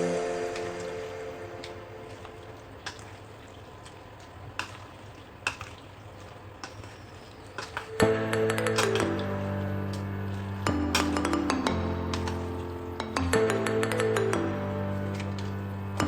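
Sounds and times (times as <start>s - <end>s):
background music: 0.0s - 3.0s, 7.8s - 16.0s
faint hiss: 0.0s - 5.0s.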